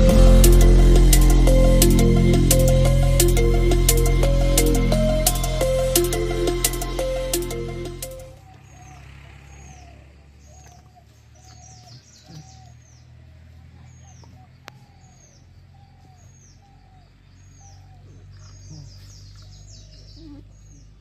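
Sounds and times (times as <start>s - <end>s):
low background rumble: 0.0s - 8.4s
birds chirping: 0.0s - 21.0s.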